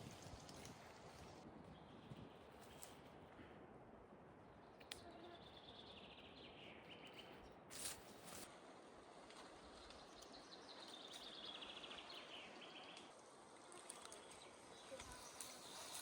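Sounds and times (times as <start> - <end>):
faint outdoor background noise: 0.0 - 16.0
brief rustle: 7.7 - 8.5.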